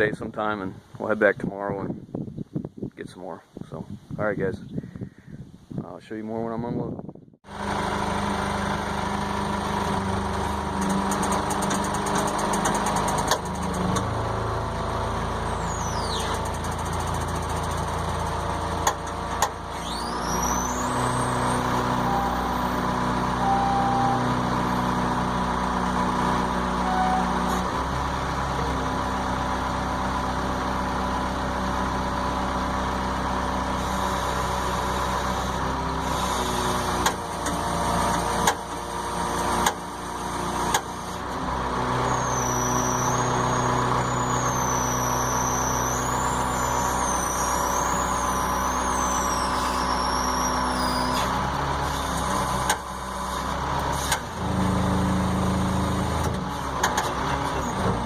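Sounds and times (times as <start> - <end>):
heavy engine idling: 7.5 - 58.0
faint high wavering tone: 22.0 - 25.0.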